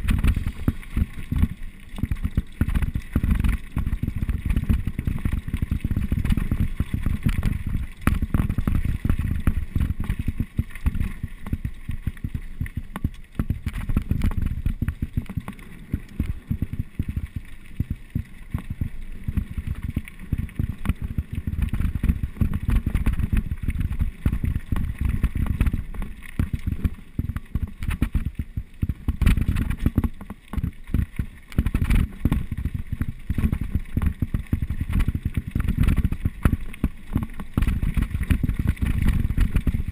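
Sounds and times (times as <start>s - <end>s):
mountain bike rattling on trail: 0.0s - 39.9s
wind buffeting microphone: 37.6s - 39.9s.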